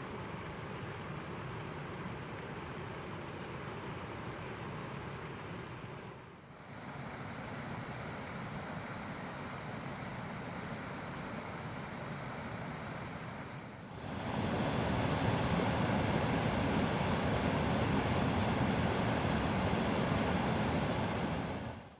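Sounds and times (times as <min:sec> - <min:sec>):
rushing river and waterfall: 0:07.0 - 0:21.9.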